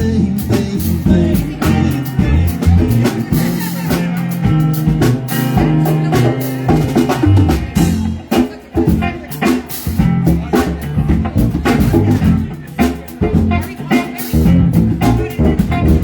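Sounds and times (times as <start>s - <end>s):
drum kit beat: 0.0s - 16.0s
live band playing: 0.0s - 16.0s.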